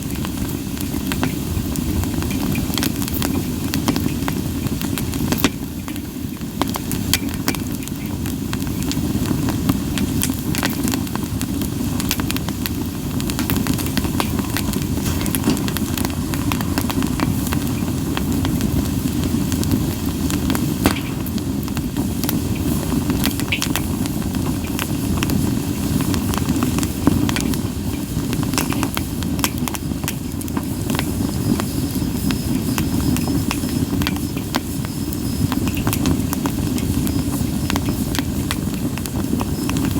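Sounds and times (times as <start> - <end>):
campfire crackling and popping: 0.0 - 39.9
low rumble of flame: 0.0 - 39.9.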